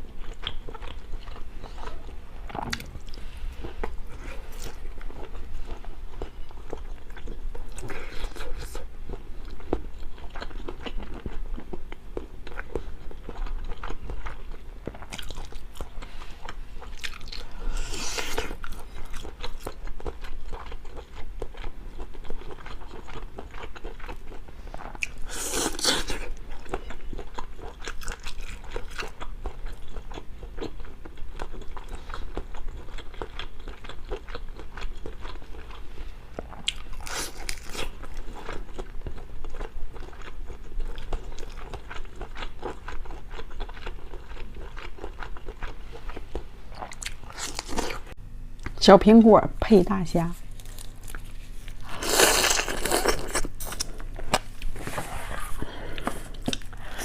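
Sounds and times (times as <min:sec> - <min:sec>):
person chewing crunchy food: 0:00.0 - 0:48.7, 0:50.4 - 0:57.0.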